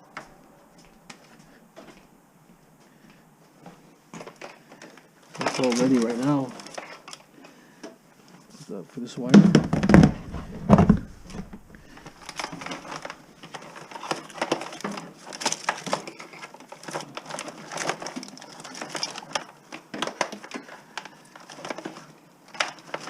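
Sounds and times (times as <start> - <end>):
plastic insulation crackling: 4.1 - 7.5, 9.3 - 23.0.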